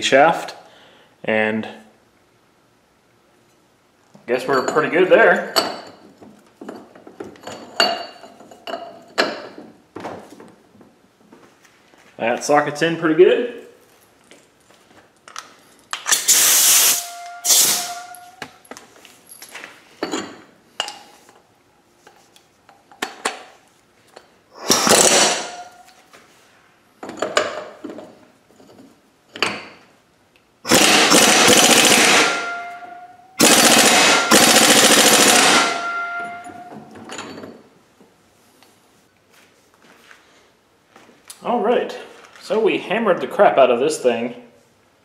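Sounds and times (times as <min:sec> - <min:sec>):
impact wrench rattling: 0:24.6 - 0:25.8, 0:30.7 - 0:37.6.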